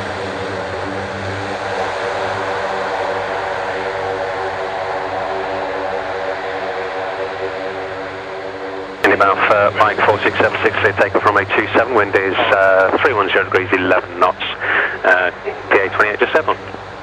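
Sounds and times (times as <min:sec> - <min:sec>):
propeller aircraft engines droning: 0:00.0 - 0:17.0.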